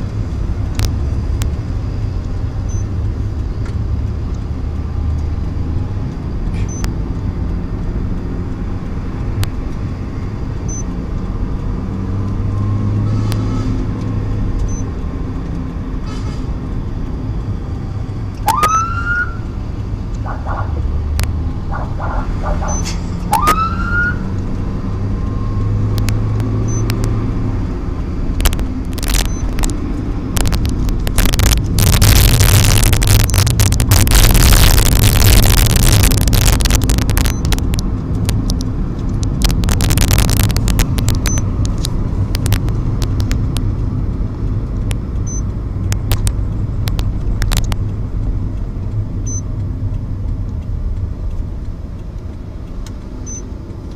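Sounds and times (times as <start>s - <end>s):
vehicle engine and road noise: 0.0s - 53.9s
siren tone blips: 18.4s - 19.4s, 21.7s - 24.3s, 31.2s - 37.6s
police siren whoops: 18.5s - 19.4s, 23.3s - 24.3s
loud crackling bursts: 25.9s - 48.4s.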